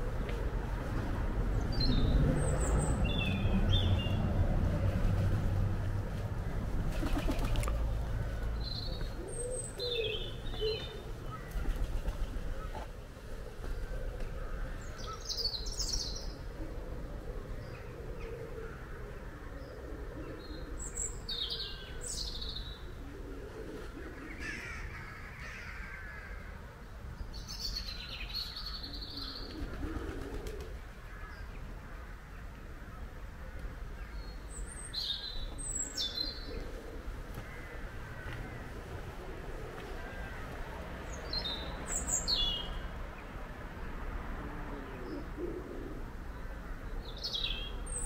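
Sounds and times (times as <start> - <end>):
low outdoor rumble: 0.0 - 15.0, 30.6 - 47.1.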